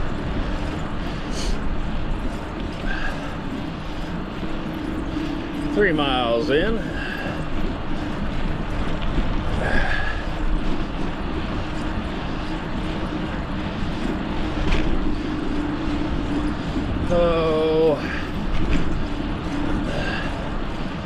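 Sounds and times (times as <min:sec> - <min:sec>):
constant low hum: 0:00.0 - 0:21.0
wind rumble on microphone: 0:00.0 - 0:21.0.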